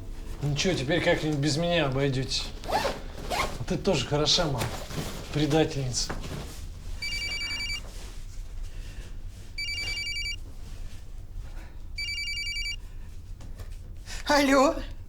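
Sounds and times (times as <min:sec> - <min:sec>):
telephone ringing electronic trill: 0:07.0 - 0:07.8, 0:09.6 - 0:10.4, 0:12.0 - 0:12.8.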